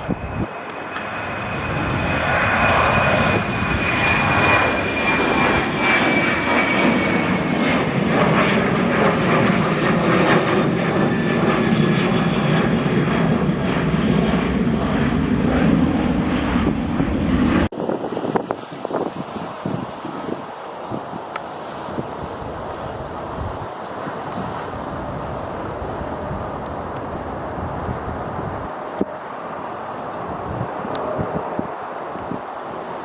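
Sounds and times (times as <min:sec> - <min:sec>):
jet engines rushing: 0:00.0 - 0:33.0
high engine whine: 0:20.5 - 0:33.0.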